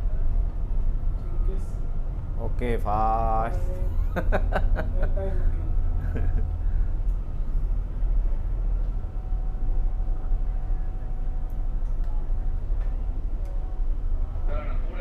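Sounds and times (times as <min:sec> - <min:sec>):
faint steady hum: 0:00.0 - 0:15.0
ship diesel engines rumbling: 0:00.0 - 0:15.0.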